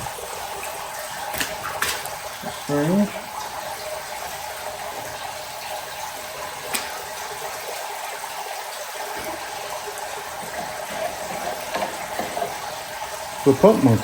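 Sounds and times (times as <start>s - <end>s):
pressure washer spraying water: 9.1s - 14.0s.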